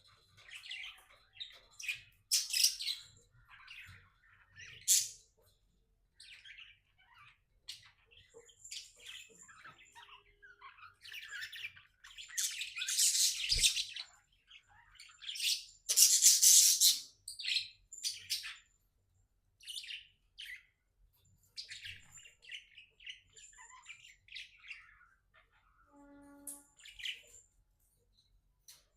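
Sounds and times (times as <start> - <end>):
budgerigar chirping and chattering: 0.3 - 5.4, 6.2 - 18.7, 21.5 - 25.8.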